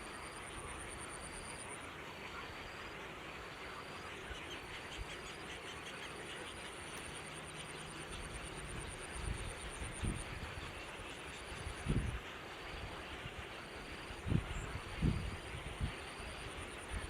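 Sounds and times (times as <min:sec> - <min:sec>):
high pulsed insect trill: 0:00.0 - 0:01.9
faint background hiss: 0:00.0 - 0:17.0.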